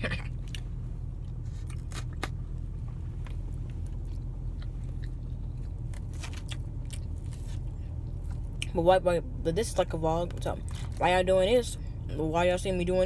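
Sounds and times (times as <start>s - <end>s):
steady low hum: 0.0s - 13.0s
person chewing food: 0.4s - 2.4s, 3.3s - 8.7s.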